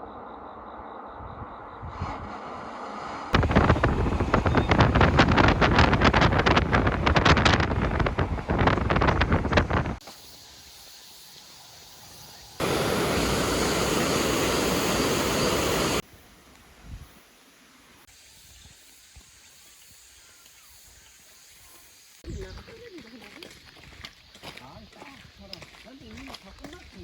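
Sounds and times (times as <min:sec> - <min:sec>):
wind buffeting microphone: 0:03.3 - 0:10.0
mountain stream rushing: 0:12.6 - 0:16.0.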